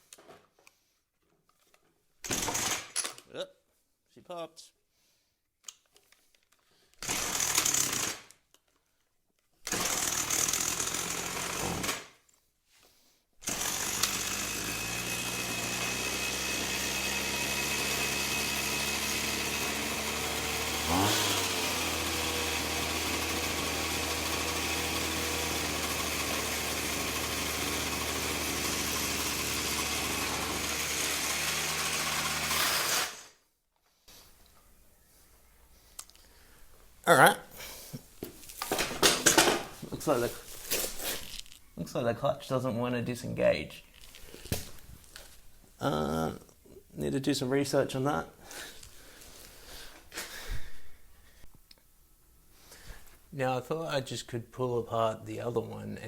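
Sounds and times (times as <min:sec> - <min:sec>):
string trimmer engine running: 0:09.7 - 0:11.9, 0:13.4 - 0:33.3.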